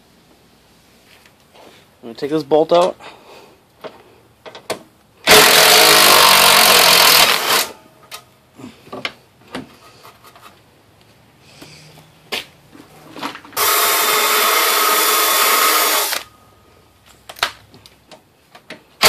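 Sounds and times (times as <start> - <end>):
cordless driver running: 5.3 - 7.7, 13.6 - 16.3.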